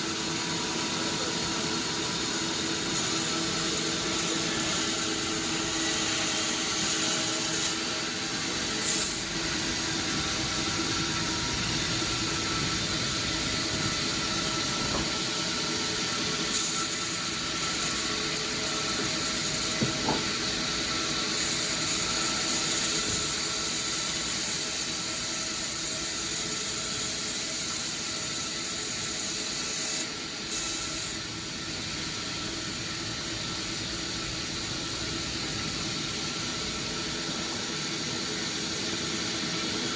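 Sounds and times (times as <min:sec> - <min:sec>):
sawmill saw cutting timber: 0:00.0 - 0:30.2.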